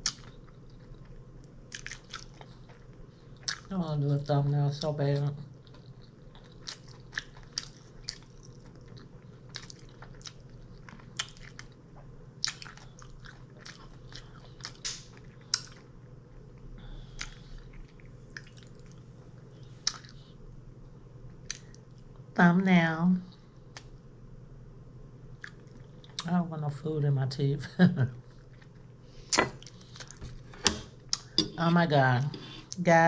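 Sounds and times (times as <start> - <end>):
person chewing and biting food: 0.0 - 3.7, 5.6 - 15.9, 17.0 - 19.1, 19.7 - 20.2, 28.4 - 31.4
steady low hum: 0.0 - 33.0.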